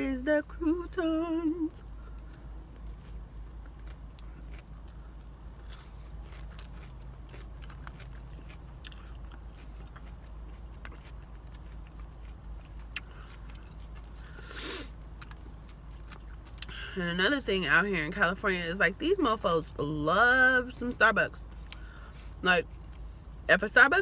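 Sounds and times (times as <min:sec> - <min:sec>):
steady low hum: 0:00.0 - 0:24.0
chewing crunchy croutons: 0:01.4 - 0:17.6.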